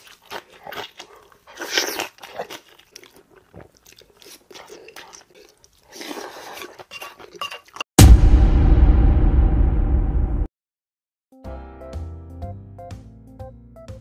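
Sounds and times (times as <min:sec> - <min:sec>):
crunchy bite into cabbage: 0:00.0 - 0:07.8
chewing and mouth noises: 0:00.0 - 0:07.9.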